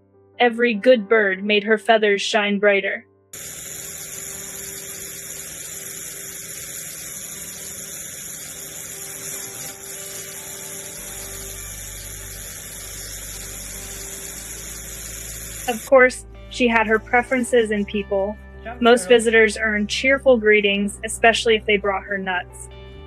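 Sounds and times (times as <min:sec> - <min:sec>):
electric toothbrush buzzing: 0:03.4 - 0:16.0, 0:18.8 - 0:19.5
low hum: 0:03.4 - 0:23.0.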